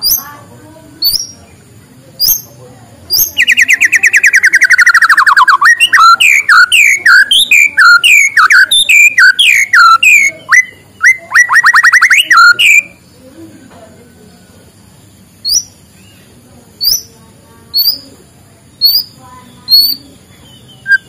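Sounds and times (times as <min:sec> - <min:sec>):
bird singing loudly: 0:01.0 - 0:01.5, 0:02.2 - 0:13.2, 0:15.4 - 0:16.2, 0:16.8 - 0:21.0.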